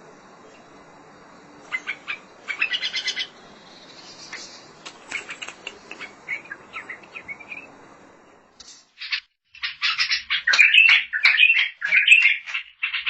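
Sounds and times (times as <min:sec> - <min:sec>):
bird singing chirps and whistles: 0:01.7 - 0:07.7, 0:09.6 - 0:13.0.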